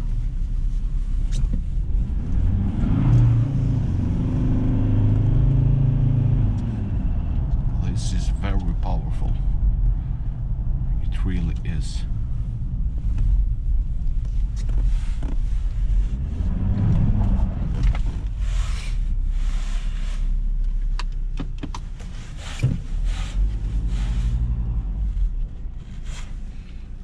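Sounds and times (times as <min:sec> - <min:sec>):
road and tyre noise: 0:00.0 - 0:27.0
truck engine accelerating: 0:01.2 - 0:20.4.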